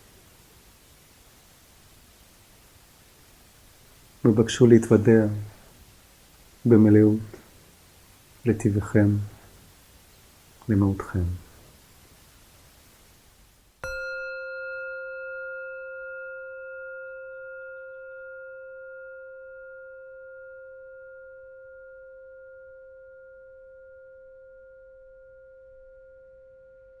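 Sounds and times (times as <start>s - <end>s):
singing bowl ringing: 13.8s - 27.0s.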